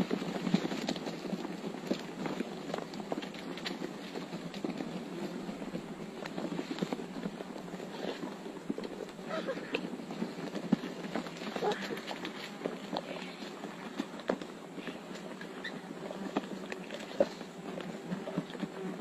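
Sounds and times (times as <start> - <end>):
vultures scuffling and flapping: 0.0 - 19.0
vulture calls: 11.5 - 12.3.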